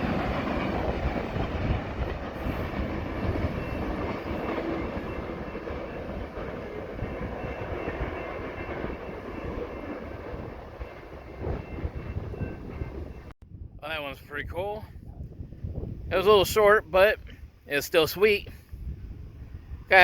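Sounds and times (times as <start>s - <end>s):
freight train rumbling past: 0.0s - 14.9s.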